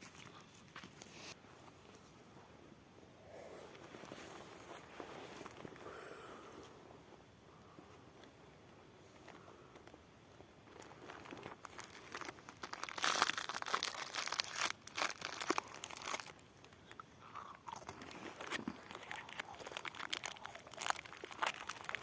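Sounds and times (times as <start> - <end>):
crunching and crinkling: 0.0 - 2.1, 3.7 - 6.0, 9.0 - 22.0.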